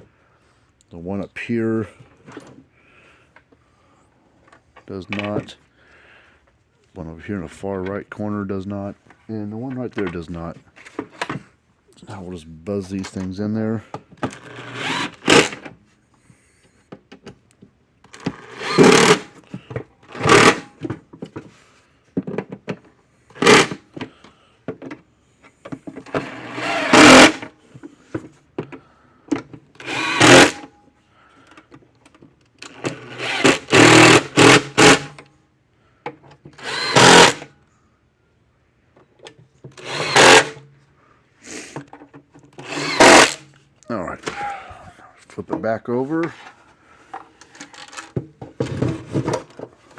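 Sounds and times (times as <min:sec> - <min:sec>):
cordless drill driving screws: 0:14.2 - 0:15.7, 0:18.2 - 0:19.4, 0:20.1 - 0:20.7, 0:23.3 - 0:23.8, 0:26.1 - 0:27.5, 0:29.8 - 0:30.7, 0:32.6 - 0:35.2, 0:36.6 - 0:37.5, 0:39.8 - 0:40.6, 0:42.6 - 0:43.4.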